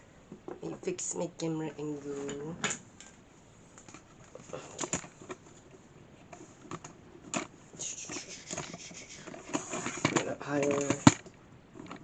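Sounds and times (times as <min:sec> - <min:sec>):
objects clicking and knocking: 0:08.5 - 0:12.0.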